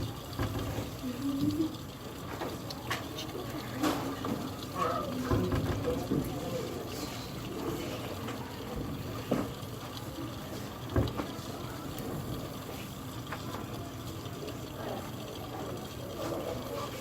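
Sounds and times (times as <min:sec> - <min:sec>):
steam sputtering and hissing: 0:00.0 - 0:17.0
water boiling in a tin can: 0:00.0 - 0:17.0.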